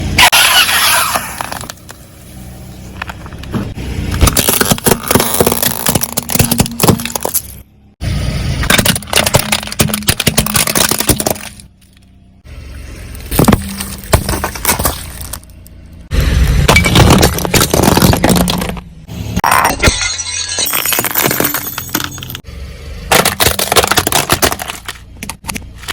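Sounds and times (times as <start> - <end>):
car low hum: 0.0 - 19.4
tyres crushing crunchy objects: 0.2 - 2.1, 2.9 - 7.6, 8.6 - 12.1, 13.2 - 19.8, 23.1 - 25.9.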